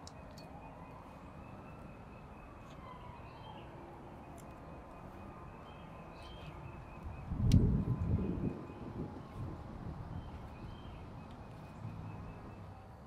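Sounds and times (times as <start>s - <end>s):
faint bird chirps: 0.0s - 9.5s.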